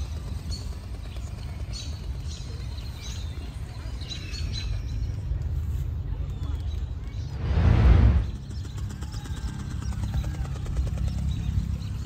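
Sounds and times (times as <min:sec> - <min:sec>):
low outdoor rumble: 0:06.9 - 0:08.6.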